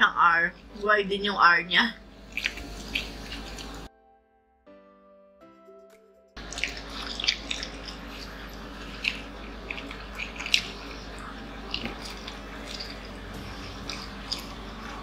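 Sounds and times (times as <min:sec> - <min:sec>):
steady low hum: 0:00.0 - 0:03.9, 0:06.4 - 0:15.0
chewing and biting food: 0:02.2 - 0:03.9, 0:06.4 - 0:15.0
wet mouth smacks and clicks: 0:02.3 - 0:03.9.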